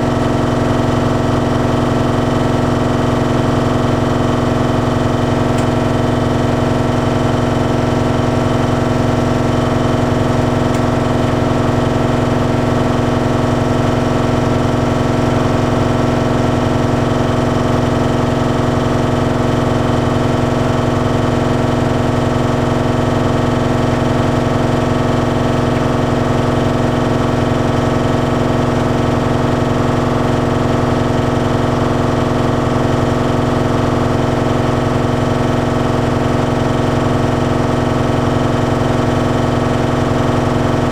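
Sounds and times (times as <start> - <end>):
dryer motor low rumble: 0.0 - 40.9
tumble dryer humming: 2.8 - 28.1.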